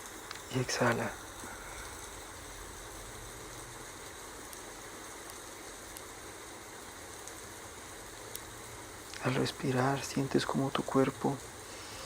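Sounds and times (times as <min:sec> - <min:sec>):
rain falling: 0:00.0 - 0:12.0
faint ticks: 0:08.2 - 0:08.5.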